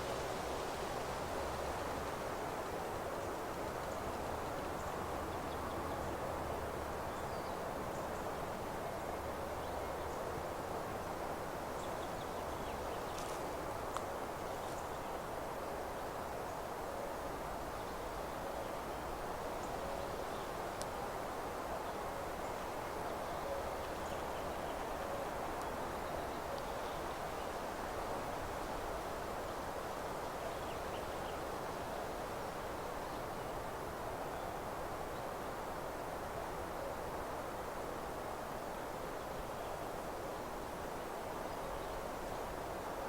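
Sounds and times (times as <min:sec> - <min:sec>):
wind through foliage: 0:00.0 - 0:43.0
small tick: 0:13.1 - 0:14.1, 0:20.8 - 0:21.0.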